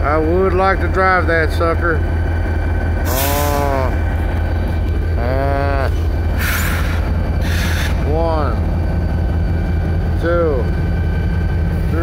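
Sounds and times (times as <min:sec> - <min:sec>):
engine idling: 0:00.0 - 0:12.0
drawn-out rising and falling calls: 0:03.1 - 0:08.1.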